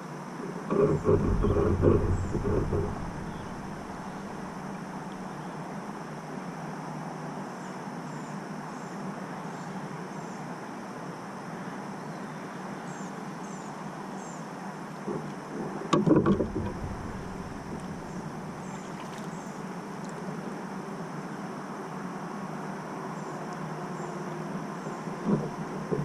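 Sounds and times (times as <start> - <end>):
open-air background hiss: 0.0 - 26.0
low rumble: 0.7 - 5.4, 16.1 - 18.9.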